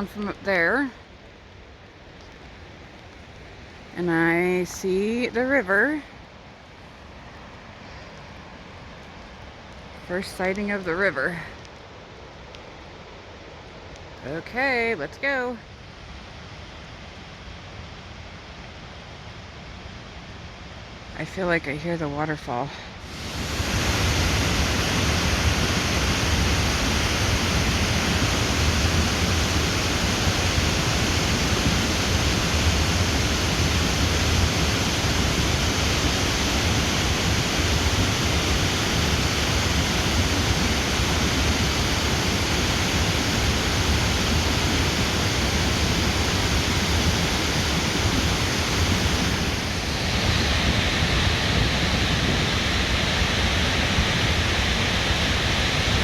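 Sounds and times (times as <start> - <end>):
waterfall rushing: 22.4 - 56.0.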